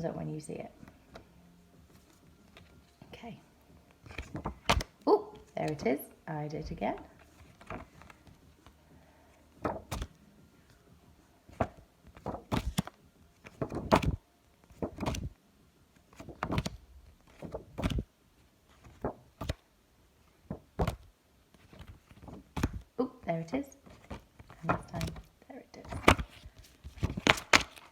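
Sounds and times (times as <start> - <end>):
flashcards flipping: 1.9 - 3.1, 3.9 - 6.0, 6.6 - 10.8, 11.5 - 18.1, 18.7 - 19.6, 20.4 - 22.9, 23.8 - 27.9.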